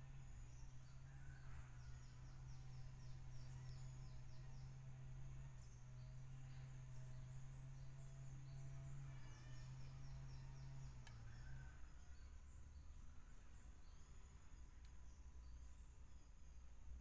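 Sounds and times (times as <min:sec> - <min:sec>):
faint click: 0:11.0 - 0:11.2.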